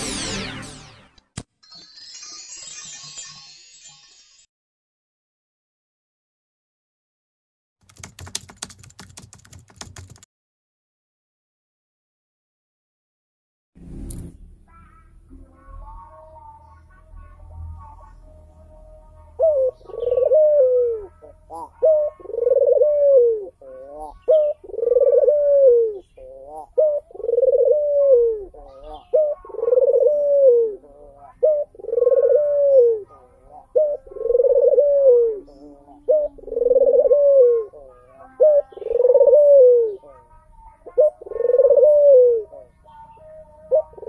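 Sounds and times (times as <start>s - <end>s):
dove cooing: 14.7s - 44.0s.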